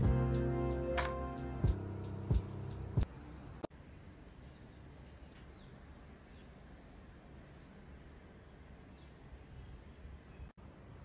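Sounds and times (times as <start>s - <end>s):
low background rumble: 0.0s - 11.0s
small birds chirping: 3.8s - 10.6s.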